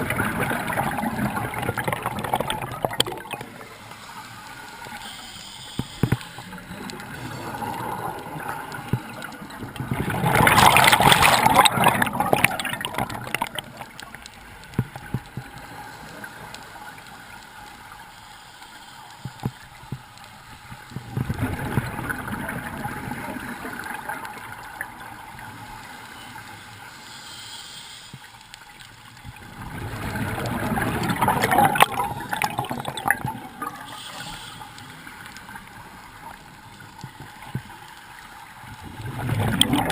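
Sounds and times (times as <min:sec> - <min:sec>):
diver's bubbles gurgling: 0:00.0 - 0:03.8, 0:06.0 - 0:15.7, 0:20.8 - 0:25.6, 0:29.2 - 0:34.1, 0:38.6 - 0:39.9
water noise: 0:00.0 - 0:39.9.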